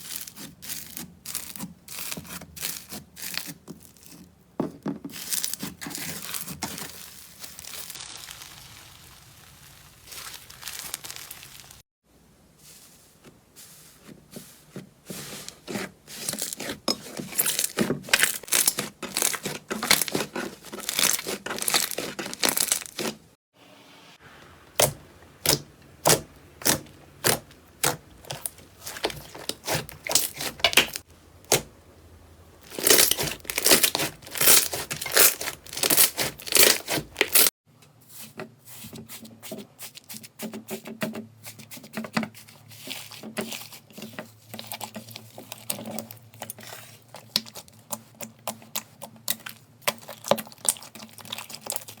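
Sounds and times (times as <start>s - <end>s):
slime crackling and popping: 5.2s - 11.8s, 17.4s - 23.2s, 24.8s - 31.7s, 32.6s - 37.5s, 44.5s - 52.0s.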